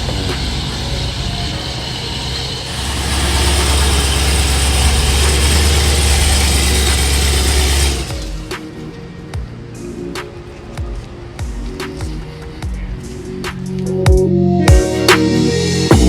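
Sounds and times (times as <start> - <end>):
car engine rumbling: 0.0 - 10.0.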